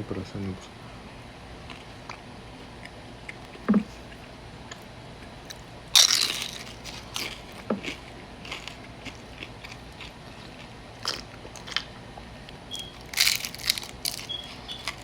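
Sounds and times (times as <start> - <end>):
chewing crunches: 1.6 - 15.0
crunching bite: 4.7 - 11.9, 12.7 - 15.0.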